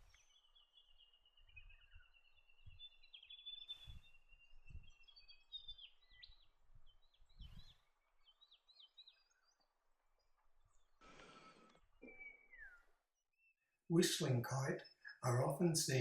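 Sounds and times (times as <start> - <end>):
short bird chirps: 0.0 - 9.6, 11.4 - 13.7
high bird trill: 12.0 - 12.9.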